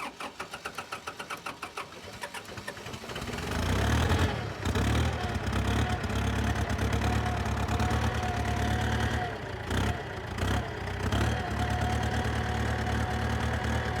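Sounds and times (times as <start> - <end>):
diesel tractor engine idling: 4.4 - 14.0.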